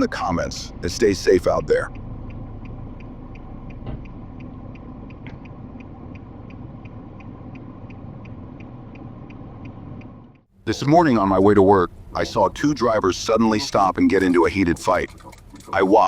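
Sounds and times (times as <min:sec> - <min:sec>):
light even ticking: 0:00.0 - 0:10.5
road and engine rumble: 0:00.0 - 0:16.0.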